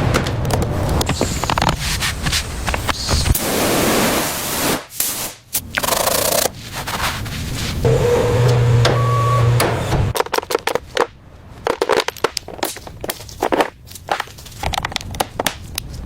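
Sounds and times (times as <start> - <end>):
scraping and rubbing: 0.8 - 4.1, 5.6 - 8.7
power tool motor humming: 7.8 - 10.1.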